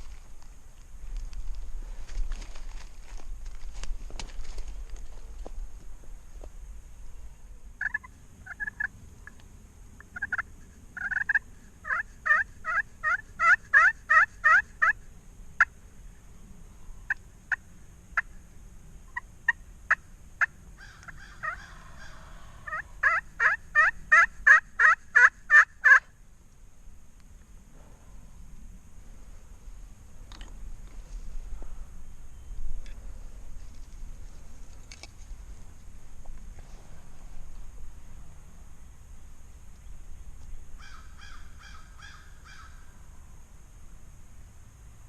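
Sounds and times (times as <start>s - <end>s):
turkey yelping: 7.8s - 8.9s, 10.2s - 15.0s, 20.8s - 26.1s.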